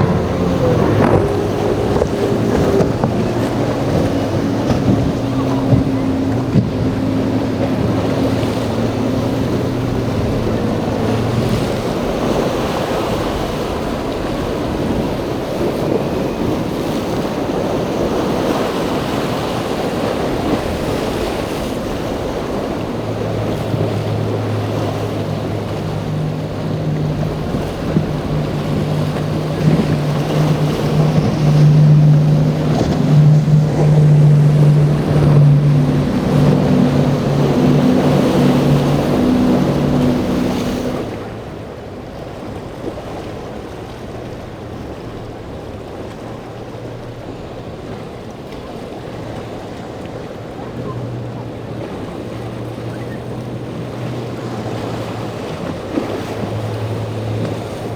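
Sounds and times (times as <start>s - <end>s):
wind noise on microphone: 0.0s - 41.3s
boat engines droning: 0.0s - 57.9s
waves: 0.0s - 57.9s.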